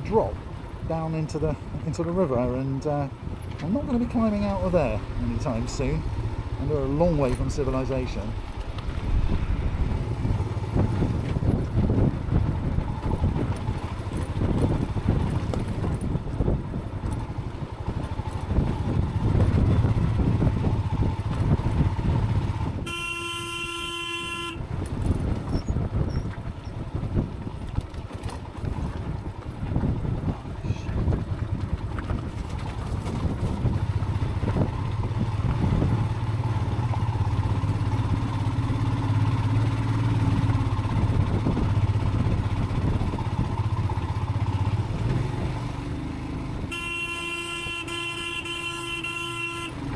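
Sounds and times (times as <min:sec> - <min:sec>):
wind buffeting: 0:00.0 - 0:22.9, 0:28.4 - 0:45.5
motorcycle engine running: 0:02.6 - 0:49.9
motorcycle horn blast: 0:22.8 - 0:24.6, 0:46.7 - 0:49.9.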